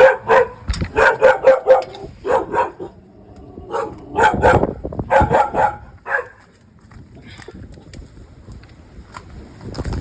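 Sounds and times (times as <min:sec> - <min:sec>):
dog barking: 0:00.0 - 0:03.0, 0:03.7 - 0:06.4.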